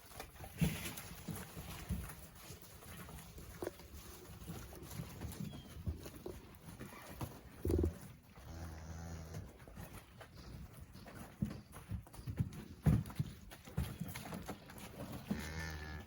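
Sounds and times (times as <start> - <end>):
cattle knocking and shuffling: 0.0 - 16.0
cow mooing: 8.4 - 9.5, 15.3 - 16.0.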